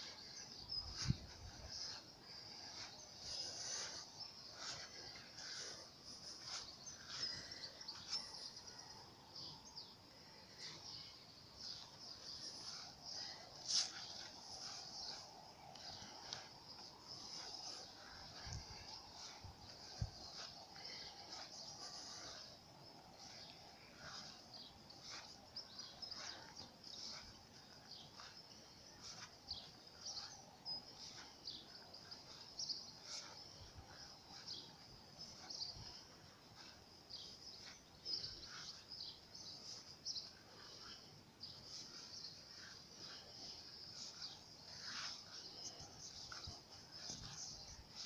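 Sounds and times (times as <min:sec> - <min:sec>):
small birds twittering: 0:00.0 - 0:48.0.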